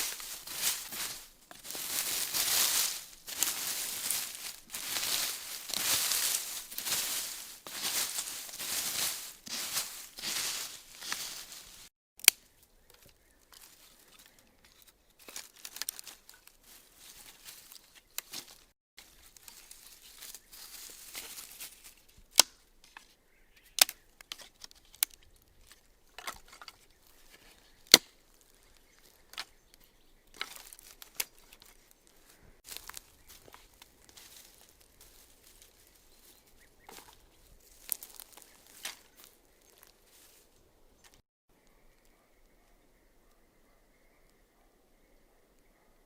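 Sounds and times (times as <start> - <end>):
scraping and rustling: 0.0 - 11.9.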